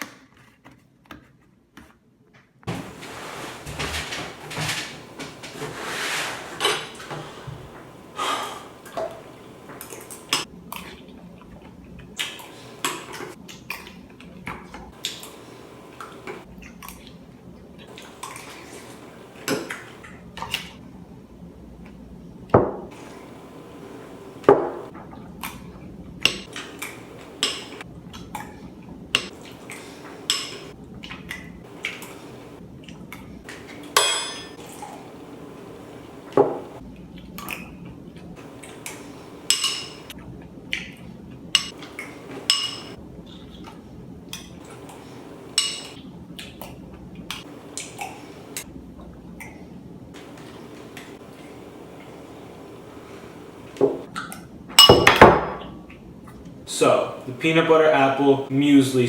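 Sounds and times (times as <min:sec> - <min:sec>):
spoon clinking against bowl: 0:42.5 - 0:42.9.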